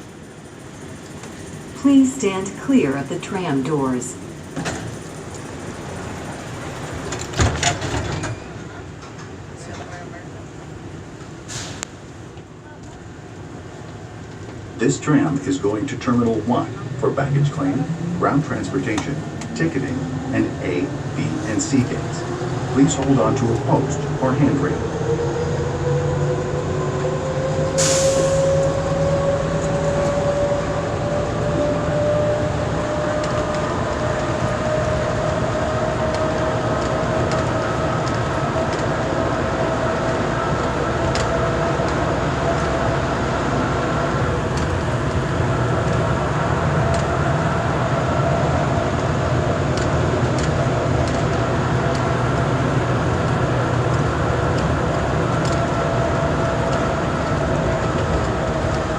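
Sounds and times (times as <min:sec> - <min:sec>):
tram rumble and whine: 0:00.0 - 0:58.9
short hiss: 0:11.5 - 0:12.0, 0:27.8 - 0:28.3.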